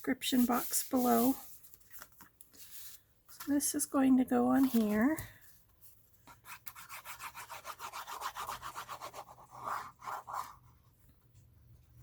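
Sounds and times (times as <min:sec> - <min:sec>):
rubbing on paper: 0:00.2 - 0:01.6, 0:06.3 - 0:10.7.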